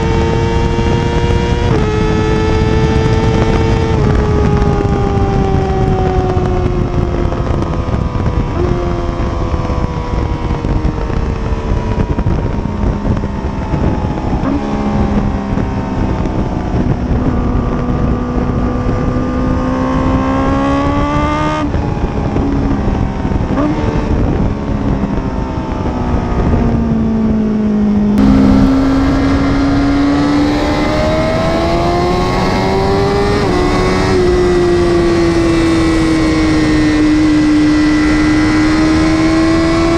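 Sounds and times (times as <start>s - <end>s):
motorcycle engine running hard: 0.0s - 39.9s
rushing wind noise: 0.0s - 39.9s.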